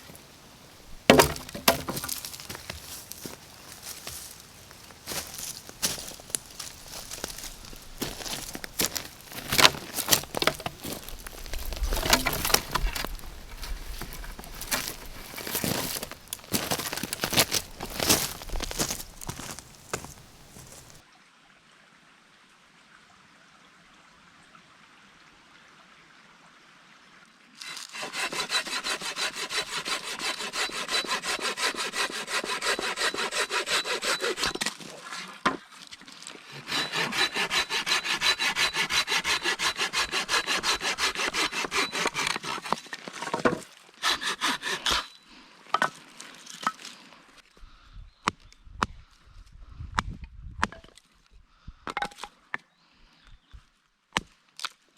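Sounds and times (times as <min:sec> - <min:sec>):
hand saw cutting wood: 0:01.0 - 0:04.4, 0:05.1 - 0:21.0, 0:27.6 - 0:35.6, 0:36.5 - 0:45.2
knocks: 0:01.1 - 0:02.2.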